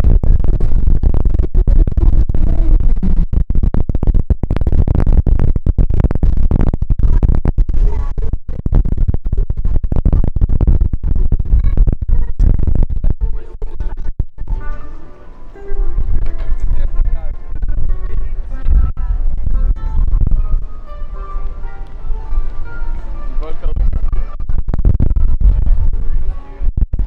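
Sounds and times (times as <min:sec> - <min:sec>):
wind buffeting microphone: 0:00.0 - 0:27.0
faint music: 0:14.5 - 0:24.4, 0:25.5 - 0:26.7.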